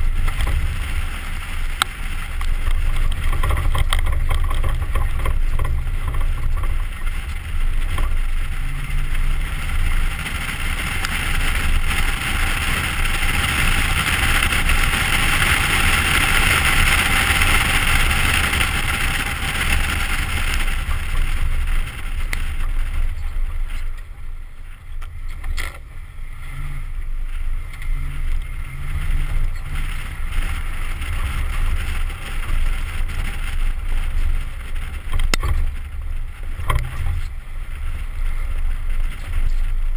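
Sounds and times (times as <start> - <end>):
wind buffeting microphone: 0.0 - 25.6
truck engine roaring: 0.0 - 39.9.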